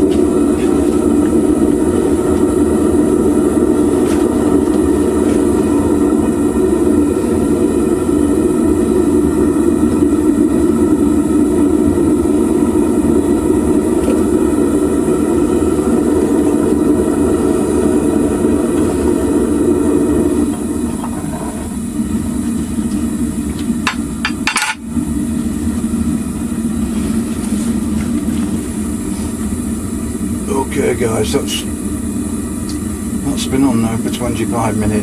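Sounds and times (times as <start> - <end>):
furnace burner flame roaring: 0.0 - 35.0
sharp metallic knocks: 23.9 - 24.8.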